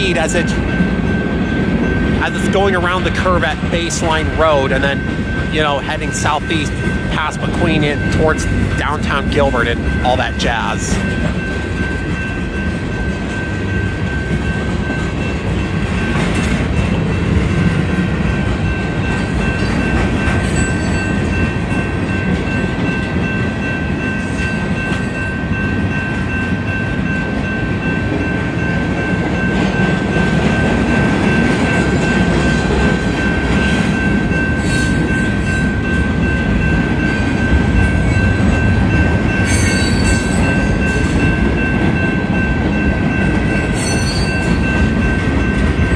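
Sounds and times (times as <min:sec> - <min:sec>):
steady high-pitched tone: 0:00.0 - 0:45.9.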